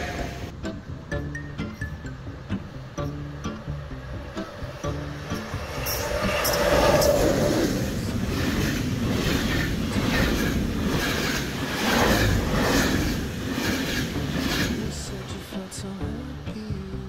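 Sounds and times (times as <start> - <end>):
train rumble: 0.0 - 1.1, 2.1 - 17.0
train wheels clicking over rail joints: 4.0 - 15.6.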